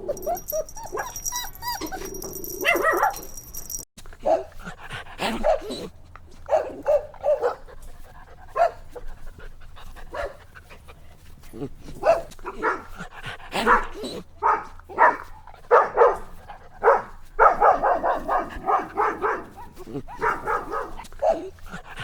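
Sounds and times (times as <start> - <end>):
puppies barking and yipping: 0.0 - 3.9, 14.4 - 21.4.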